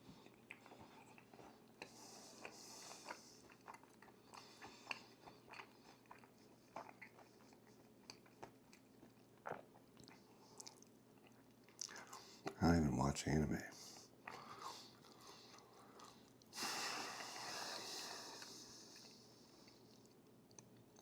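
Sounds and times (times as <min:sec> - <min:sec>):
chewing and crunching food: 0:00.0 - 0:12.6, 0:13.8 - 0:21.0.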